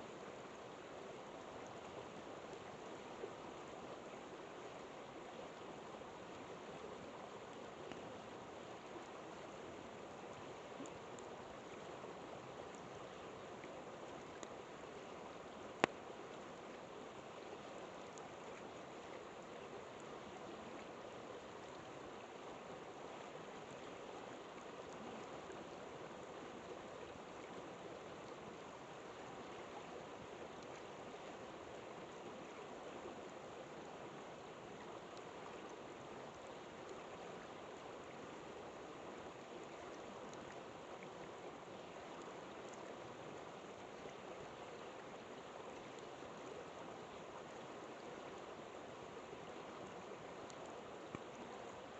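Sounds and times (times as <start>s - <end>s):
river water flowing: 0.0s - 51.9s.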